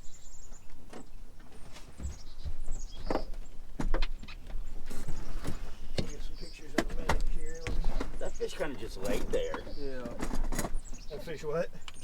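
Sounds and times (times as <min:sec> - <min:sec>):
knocks of gear in a boat: 0:00.7 - 0:12.0.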